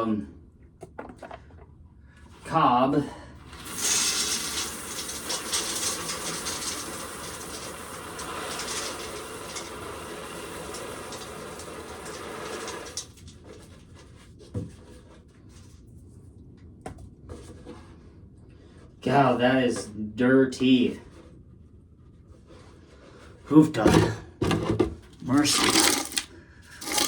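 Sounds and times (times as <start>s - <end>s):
corn kernels pouring and rattling: 3.6s - 13.2s, 25.3s - 27.0s.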